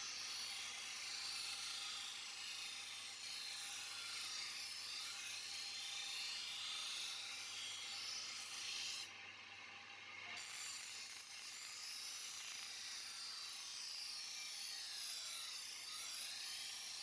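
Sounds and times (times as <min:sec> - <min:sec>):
knife blade grinding on abrasive: 0:03.2 - 0:09.1, 0:10.4 - 0:17.0.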